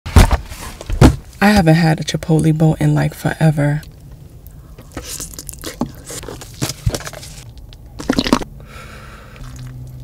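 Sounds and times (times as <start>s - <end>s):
person chewing food: 4.5s - 8.5s, 9.3s - 10.0s.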